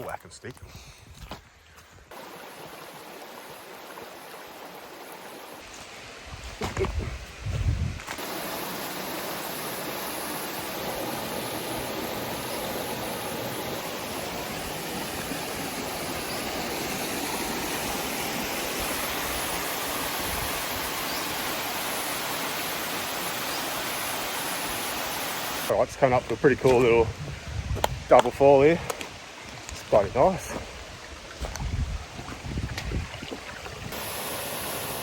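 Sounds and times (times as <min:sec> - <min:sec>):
water rushing over rocks: 0:02.1 - 0:05.7, 0:08.1 - 0:25.8, 0:30.0 - 0:35.0.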